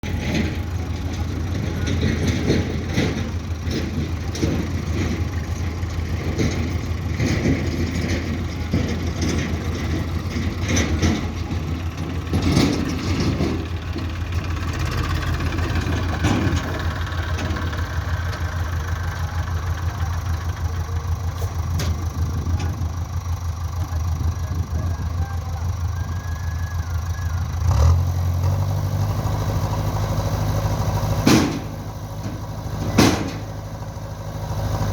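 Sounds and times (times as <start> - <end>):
heavy diesel engine running: 0.0 - 34.9
metallic knocks and clanks: 0.1 - 18.8, 31.2 - 33.6.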